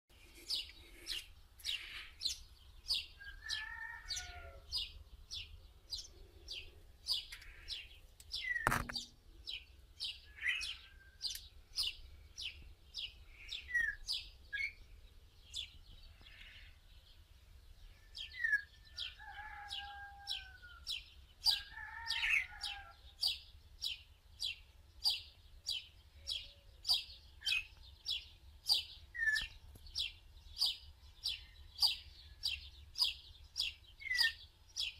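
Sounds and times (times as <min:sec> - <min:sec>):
bird chirping: 0:00.2 - 0:34.9
bird whistles: 0:29.2 - 0:29.5.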